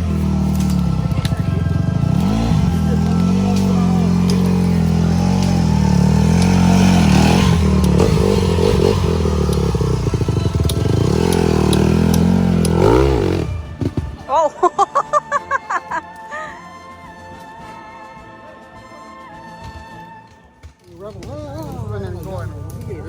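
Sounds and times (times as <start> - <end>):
dirt bike engine revving: 0.0 - 16.0, 20.9 - 23.0.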